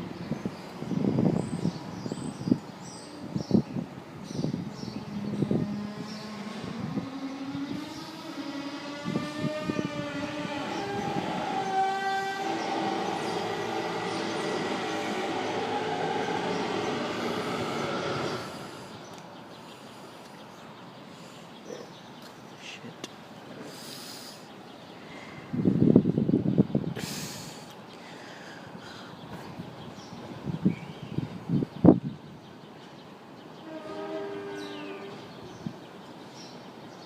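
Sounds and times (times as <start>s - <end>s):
eerie sliding horn-like tones: 5.2s - 19.1s.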